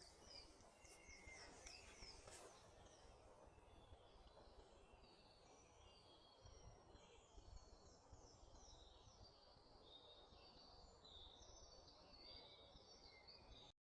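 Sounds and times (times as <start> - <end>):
birds chirping: 0.0 - 2.6.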